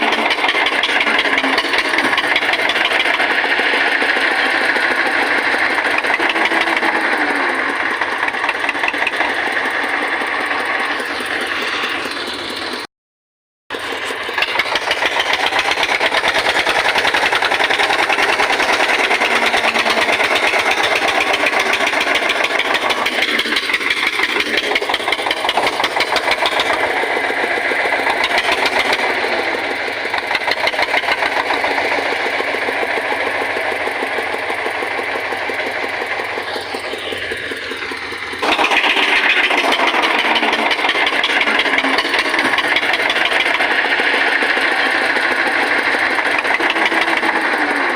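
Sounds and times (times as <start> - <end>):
tractor diesel engine knocking: 0.0 - 12.9, 13.7 - 47.9.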